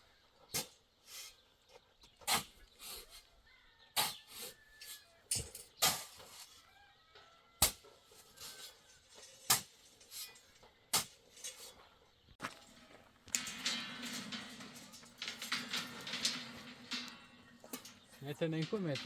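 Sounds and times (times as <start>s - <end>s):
hard tool clinking and knocking: 12.4s - 19.0s.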